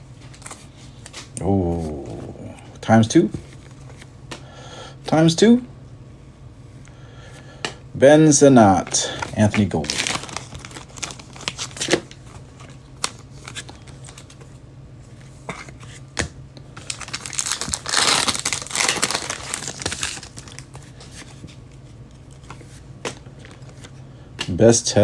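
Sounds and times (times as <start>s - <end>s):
foil wrappers crinkling and tearing: 9.0s - 14.4s, 16.8s - 21.3s.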